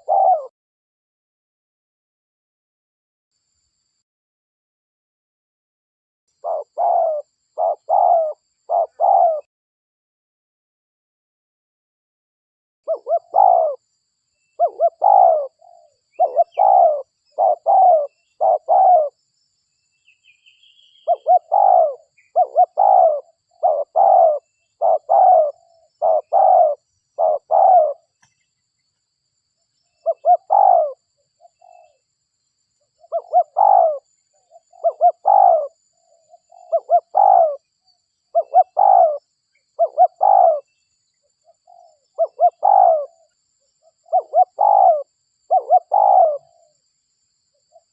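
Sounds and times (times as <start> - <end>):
dove cooing: 0.0 - 0.5, 6.4 - 9.5, 12.9 - 13.8, 14.6 - 19.2, 20.9 - 28.2, 30.0 - 32.0, 33.0 - 37.7, 38.3 - 40.7, 41.5 - 46.7.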